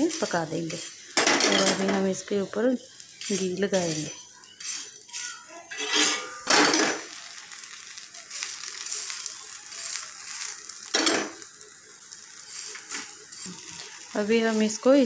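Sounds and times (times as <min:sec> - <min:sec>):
spoon scraping: 0:00.0 - 0:01.9, 0:03.1 - 0:06.5
ghee sizzling: 0:00.0 - 0:15.0.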